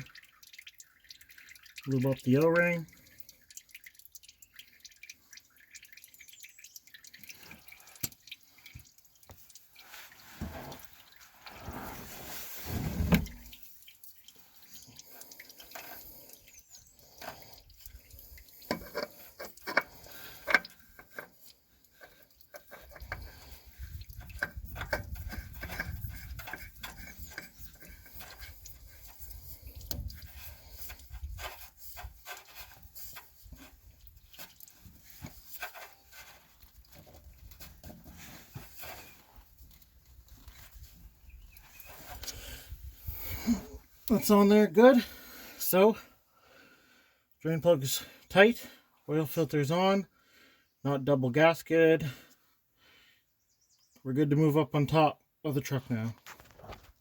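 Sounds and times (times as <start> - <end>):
oil dripping into a pan: 0.0 - 11.6, 13.2 - 44.2.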